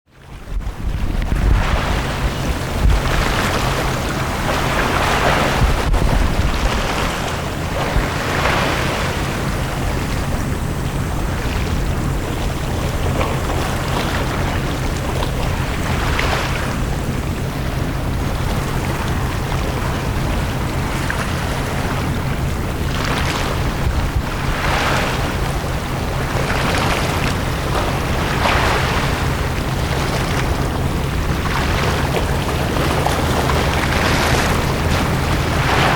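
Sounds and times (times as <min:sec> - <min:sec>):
sea waves washing onto beach: 0:00.1 - 0:35.9
low rumble: 0:00.2 - 0:35.9.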